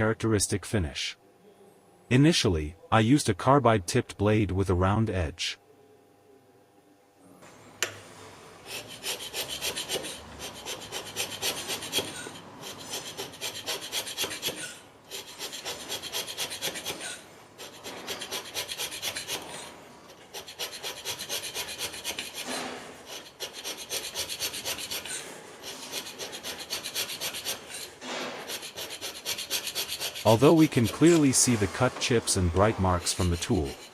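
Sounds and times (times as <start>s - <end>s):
hand scraper scraping metal: 8.7s - 33.9s.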